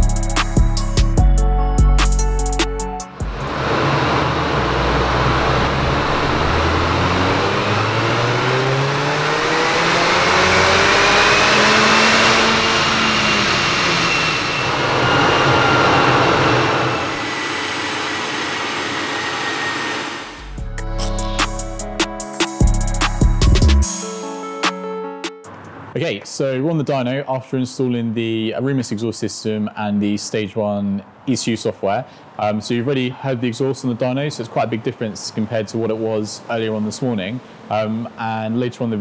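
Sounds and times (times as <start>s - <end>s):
music with a beat: 0.0s - 3.3s, 20.4s - 25.6s
car engine accelerating: 3.1s - 20.6s.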